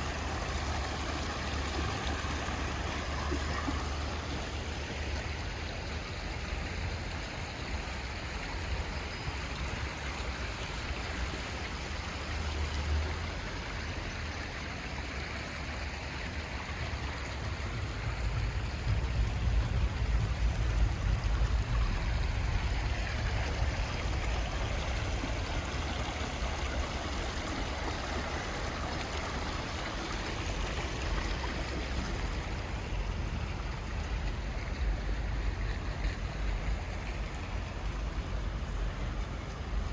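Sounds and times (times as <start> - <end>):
water running and dripping: 0.0 - 39.9
rain on pavement: 16.4 - 39.9
low rumble: 17.4 - 26.3.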